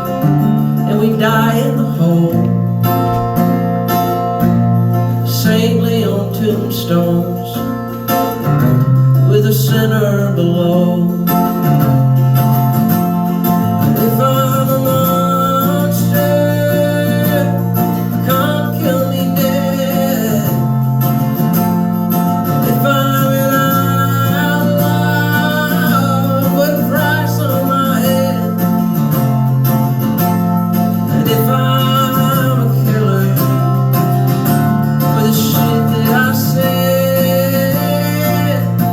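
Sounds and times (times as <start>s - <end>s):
acoustic guitar chords: 0.0s - 38.9s
wordless melody line: 10.0s - 38.9s.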